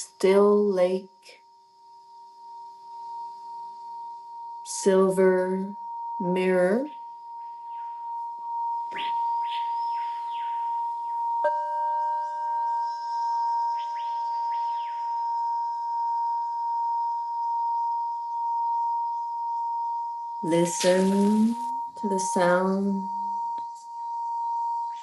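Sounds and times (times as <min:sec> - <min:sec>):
singing bowl ringing: 0:00.0 - 0:25.0
bowl or chime struck: 0:11.1 - 0:15.2.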